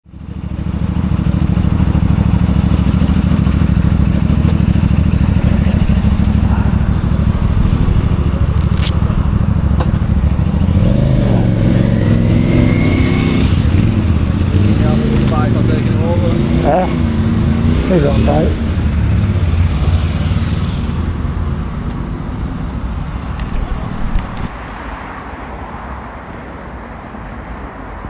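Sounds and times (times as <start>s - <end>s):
motorcycle engine rumbling: 0.2s - 21.6s, 22.3s - 24.6s
faint voices: 5.2s - 10.5s.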